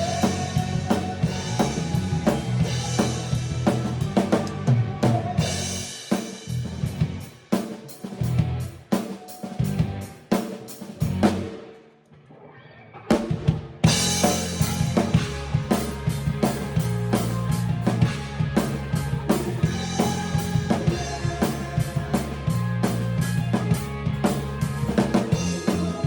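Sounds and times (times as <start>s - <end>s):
low bass line: 0.0s - 5.8s, 6.5s - 7.2s, 8.2s - 8.7s, 9.6s - 10.1s, 13.9s - 26.0s
band music with drum kit: 0.0s - 11.8s, 13.1s - 26.0s.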